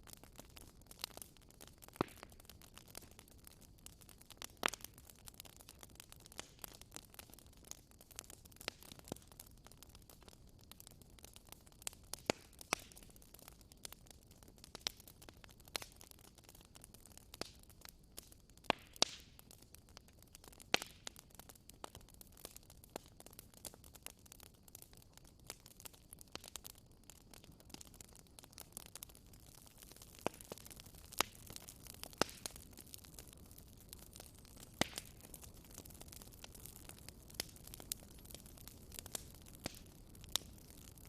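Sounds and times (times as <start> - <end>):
campfire crackling: 0.0 - 41.0
faint steady hiss: 0.0 - 41.0.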